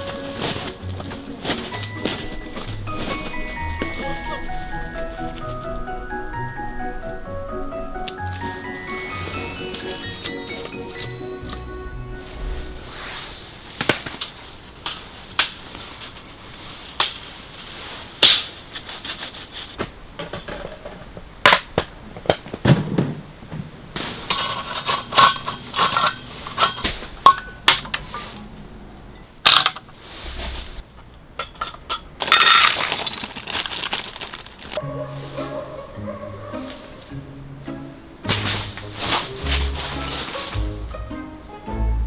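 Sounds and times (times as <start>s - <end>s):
rustling: 0.0s - 21.3s, 24.0s - 28.7s, 29.9s - 31.0s, 31.6s - 35.6s, 38.2s - 41.4s
hard objects clinking and knocking: 24.2s - 28.4s, 31.4s - 34.8s.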